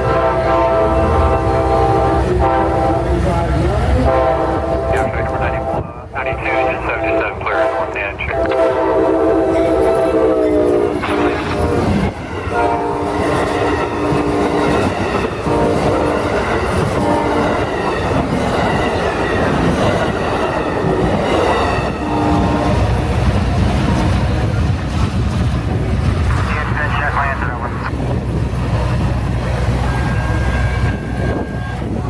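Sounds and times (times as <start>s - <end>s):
train air horn blasts: 0.0s - 3.1s, 4.0s - 5.9s, 6.5s - 16.2s, 17.0s - 17.7s
train rumbling: 0.0s - 32.0s.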